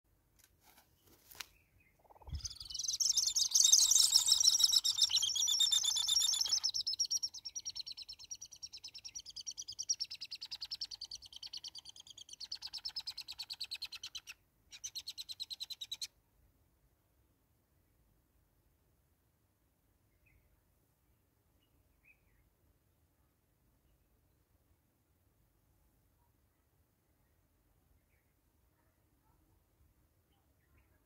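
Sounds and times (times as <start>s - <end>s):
high chirping bird calls: 1.9s - 16.1s.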